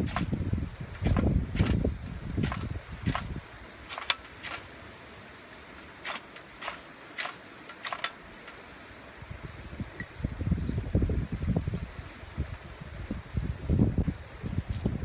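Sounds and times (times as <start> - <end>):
wind buffeting microphone: 0.0 - 4.7, 9.2 - 15.0.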